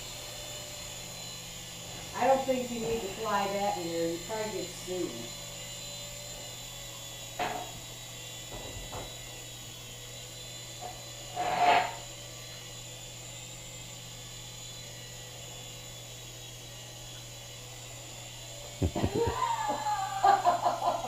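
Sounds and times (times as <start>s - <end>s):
toy helicopter rotors whining: 0.0s - 21.0s.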